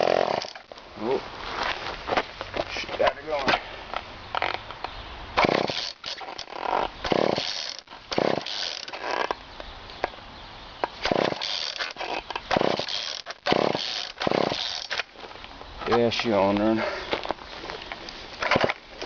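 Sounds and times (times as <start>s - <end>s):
weed whacker engine revving: 0.0s - 0.7s, 5.4s - 9.3s, 11.0s - 15.0s.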